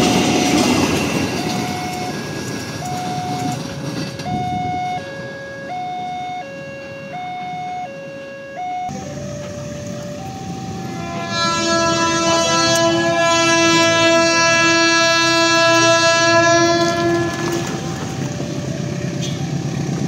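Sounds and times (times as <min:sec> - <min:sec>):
train running: 0:00.0 - 0:07.8, 0:08.9 - 0:20.0
two-tone crossing alarm: 0:00.0 - 0:20.0
locomotive horn blast: 0:04.2 - 0:19.8.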